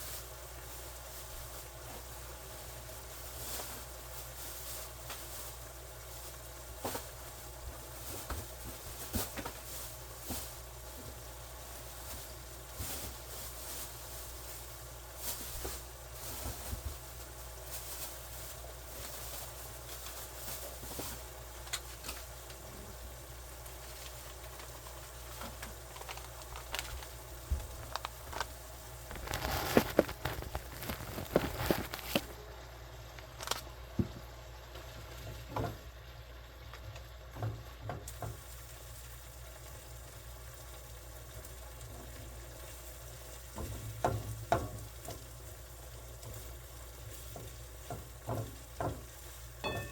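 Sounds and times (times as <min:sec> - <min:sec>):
food sizzling in a pan: 0:00.0 - 0:26.5, 0:33.7 - 0:49.9
utensil knocking and scraping pan: 0:47.1 - 0:49.9.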